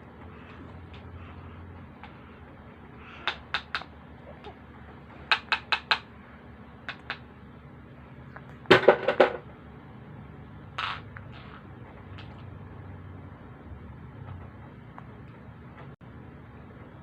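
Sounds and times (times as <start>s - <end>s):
hard objects clicking and knocking: 8.7s - 9.4s.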